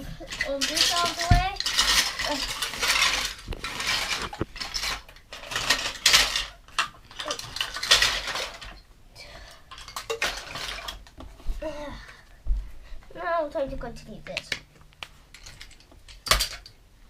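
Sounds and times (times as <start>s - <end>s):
plastic toy pieces clattering: 0.0s - 8.8s, 9.4s - 11.2s, 15.3s - 16.8s.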